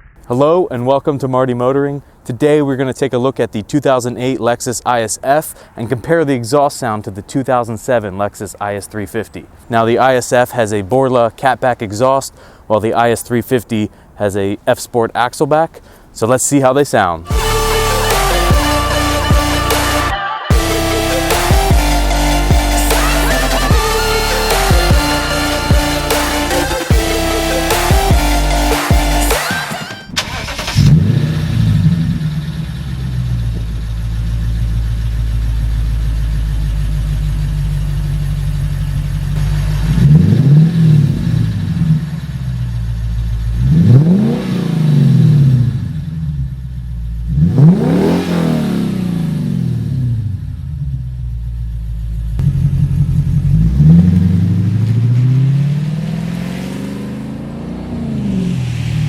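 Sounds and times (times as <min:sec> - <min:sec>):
car engine idling: 0:17.2 - 0:59.0
car engine revving: 0:17.2 - 0:59.0.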